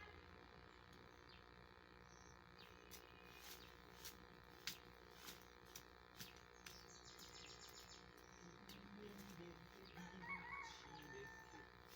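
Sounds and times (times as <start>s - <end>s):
birds chirping: 0.7s - 3.9s, 6.2s - 11.7s.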